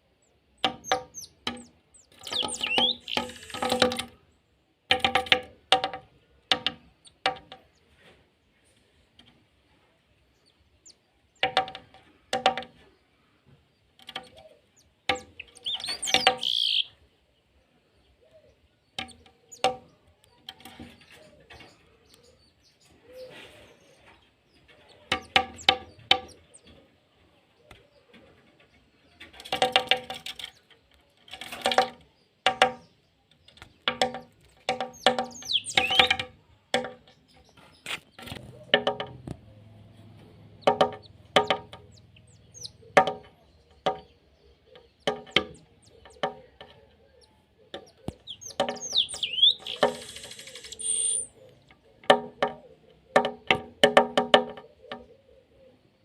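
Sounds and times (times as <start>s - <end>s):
birds calling: 0.0s - 4.6s, 10.2s - 56.0s
high quick sliding chirps: 48.3s - 51.3s.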